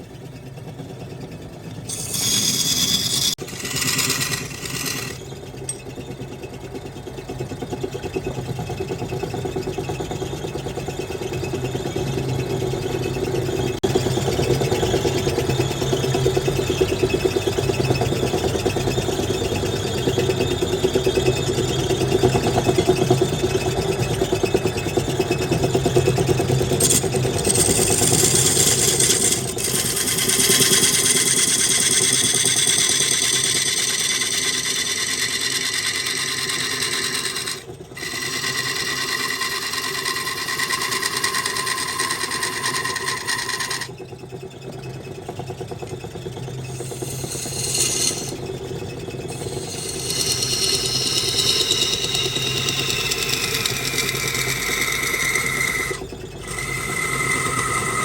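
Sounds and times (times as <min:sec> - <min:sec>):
high-pitched turning tool whine: 0:01.6 - 0:06.1, 0:17.8 - 0:44.2, 0:45.9 - 0:58.0
lathe motor hum: 0:01.7 - 0:05.8, 0:26.2 - 0:44.0, 0:46.6 - 0:58.0.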